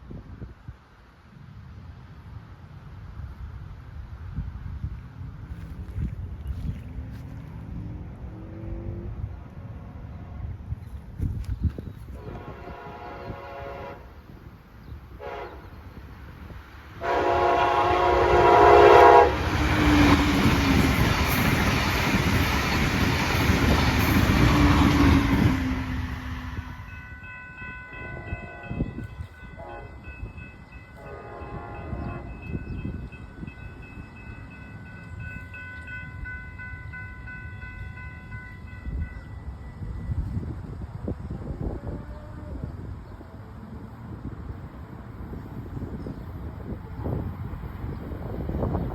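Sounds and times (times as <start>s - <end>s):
train rushing past on rails: 0.0s - 11.4s, 12.1s - 48.9s
train horn blasts: 12.2s - 14.3s, 15.2s - 16.0s, 17.0s - 20.3s, 27.8s - 32.8s
crossing warning bell ringing: 17.0s - 40.5s.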